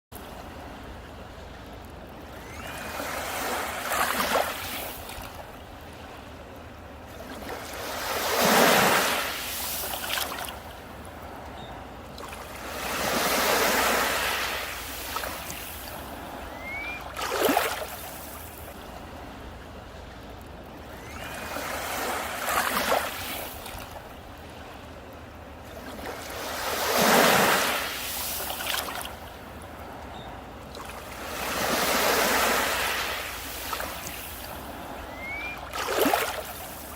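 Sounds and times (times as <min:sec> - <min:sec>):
sea waves breaking on beach: 0:00.2 - 0:36.9.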